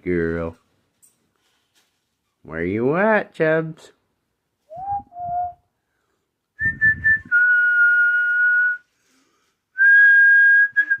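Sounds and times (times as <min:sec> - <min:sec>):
person whistling for dog: 0:04.7 - 0:05.7, 0:06.6 - 0:08.9, 0:09.8 - 0:11.0.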